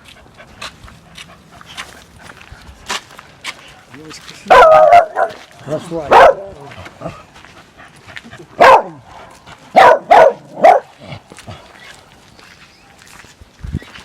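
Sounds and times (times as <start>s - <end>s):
dog barking: 4.5s - 5.5s, 6.1s - 7.2s, 8.6s - 9.0s, 9.7s - 11.0s.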